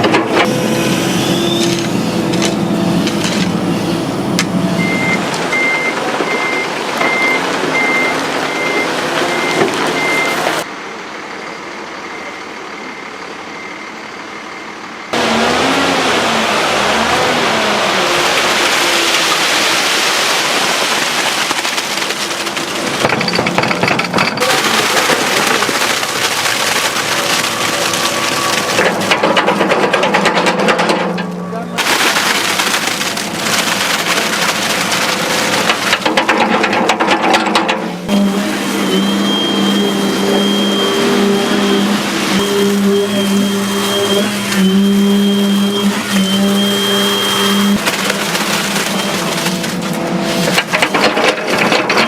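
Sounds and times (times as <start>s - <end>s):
excavator engine humming: 0.0s - 19.6s, 20.6s - 52.0s
high hydraulic whine: 0.4s - 5.1s, 38.1s - 47.8s
rushing grinding noise: 15.2s - 31.2s, 31.8s - 52.0s
fast rattling clatter: 21.3s - 31.1s.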